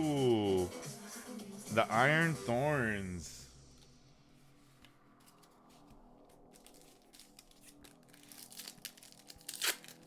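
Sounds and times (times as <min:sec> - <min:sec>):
trading cards being handled: 0:04.5 - 0:10.0
foil wrapper crinkling: 0:06.2 - 0:10.0.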